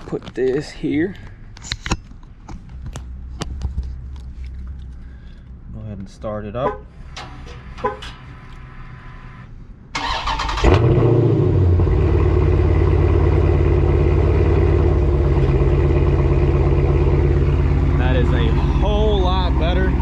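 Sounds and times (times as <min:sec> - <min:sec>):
car engine cranking: 0:06.8 - 0:20.0
car engine idling loudly: 0:10.6 - 0:20.0.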